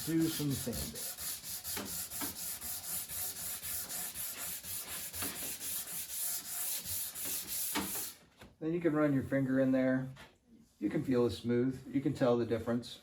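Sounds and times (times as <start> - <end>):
sandpaper rubbing on wood: 0.0 - 8.2.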